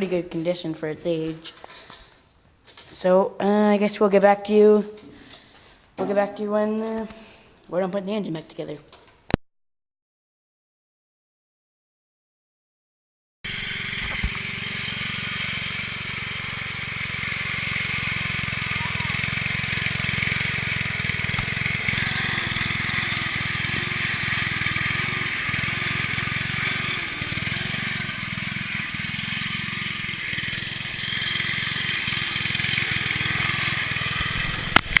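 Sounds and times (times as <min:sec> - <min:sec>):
lawn mower engine running: 0:13.5 - 0:35.0.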